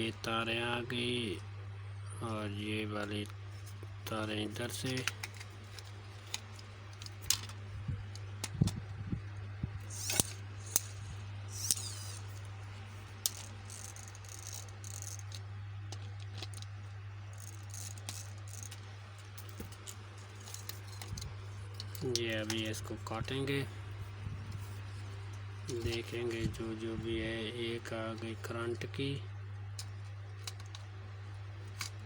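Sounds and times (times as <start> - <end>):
steady low hum: 0.0 - 32.0
clicks and rattles of small parts: 3.0 - 8.8, 9.8 - 12.6, 13.2 - 22.8, 29.7 - 31.0, 31.6 - 32.0.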